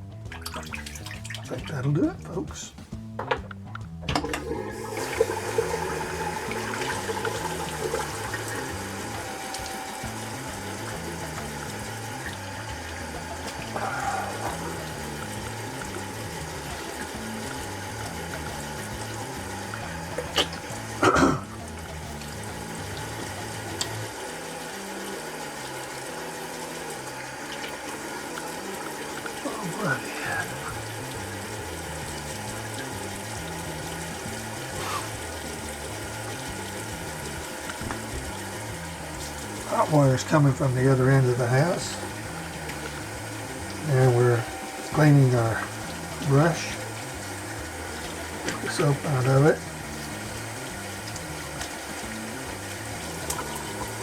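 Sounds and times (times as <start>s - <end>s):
soft background music: 0.0s - 54.0s
tap water running into sink: 0.0s - 54.0s.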